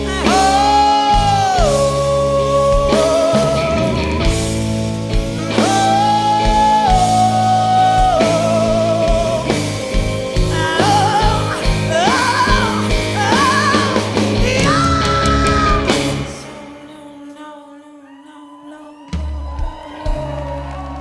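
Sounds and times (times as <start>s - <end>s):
blues-rock band playing: 0.0s - 16.8s.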